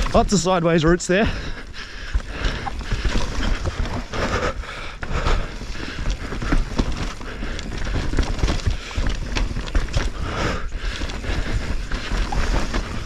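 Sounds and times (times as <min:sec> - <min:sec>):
bike tyres on dirt and roots: 0:00.0 - 0:13.0
bike frame knocking and rattling: 0:02.1 - 0:13.0.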